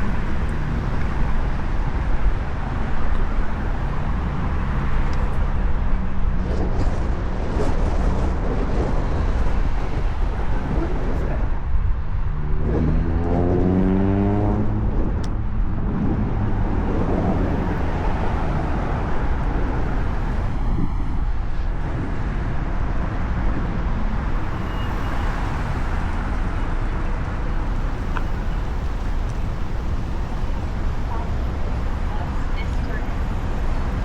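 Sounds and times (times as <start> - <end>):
city traffic rumble: 0.0 - 34.0
vehicle engine accelerating: 12.2 - 31.1.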